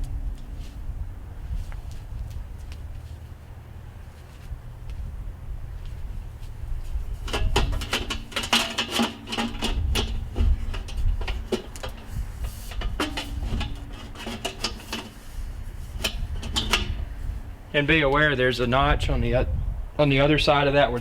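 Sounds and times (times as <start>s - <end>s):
sheet metal clanking and rattling: 7.2s - 15.2s, 16.0s - 17.1s.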